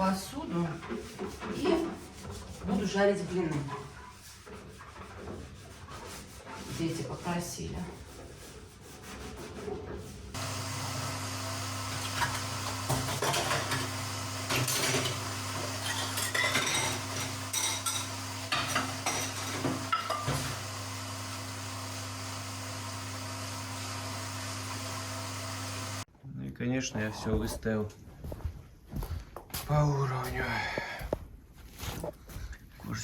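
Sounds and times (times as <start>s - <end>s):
dishes and cutlery clinking: 12.1s - 20.6s.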